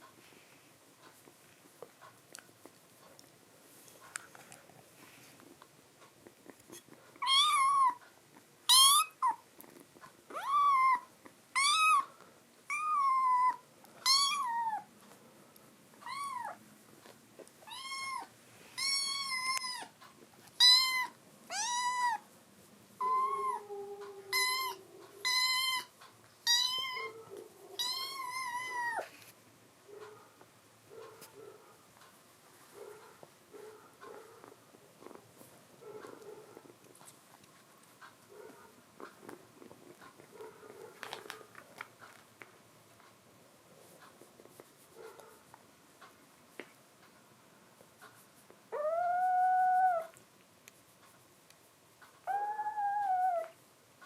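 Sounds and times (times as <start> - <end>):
kitten meowing: 7.2 - 8.0, 8.7 - 9.4, 10.3 - 12.1, 12.7 - 14.9, 16.0 - 16.6, 17.7 - 19.9, 20.6 - 22.2, 23.0 - 23.7, 24.3 - 27.2, 27.8 - 29.1.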